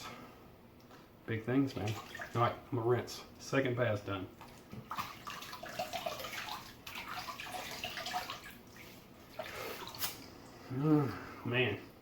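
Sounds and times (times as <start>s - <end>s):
water splashing and trickling: 1.7s - 2.6s, 4.4s - 10.6s.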